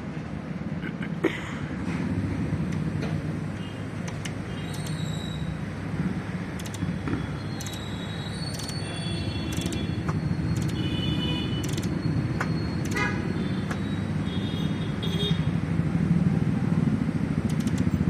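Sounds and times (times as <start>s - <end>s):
hand tools clicking and tapping: 4.0s - 5.0s, 6.6s - 7.8s, 8.5s - 8.8s, 9.5s - 10.8s, 11.6s - 13.1s, 17.5s - 18.0s
vehicle engine running: 16.0s - 18.0s.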